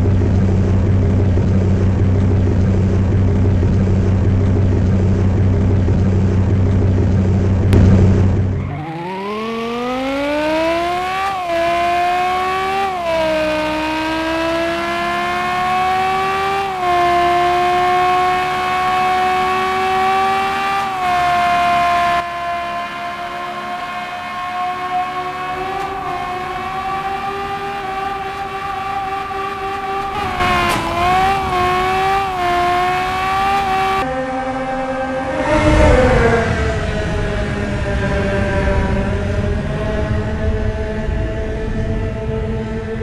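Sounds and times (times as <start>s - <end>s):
engine idling: 0.0s - 9.8s
high whine rising in pitch: 7.2s - 15.9s.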